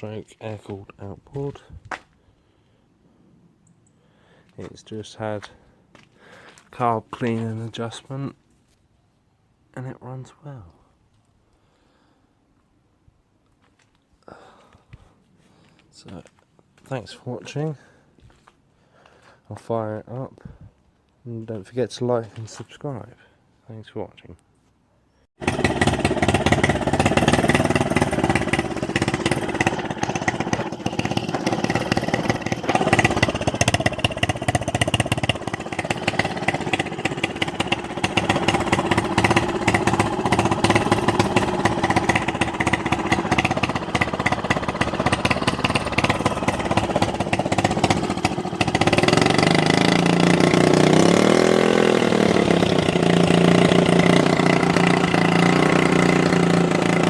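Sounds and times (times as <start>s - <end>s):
outboard motor running: 25.4s - 57.0s.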